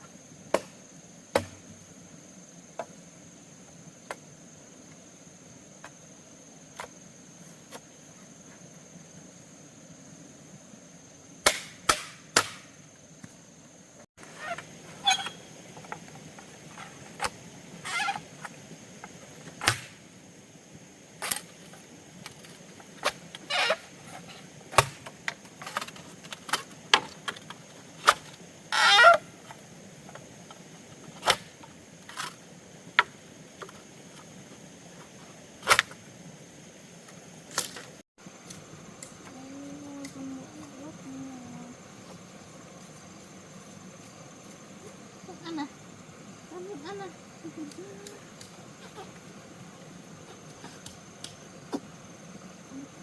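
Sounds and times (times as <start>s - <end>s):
blade chopping bamboo: 11.4s - 12.7s, 19.6s - 20.0s, 24.7s - 25.2s.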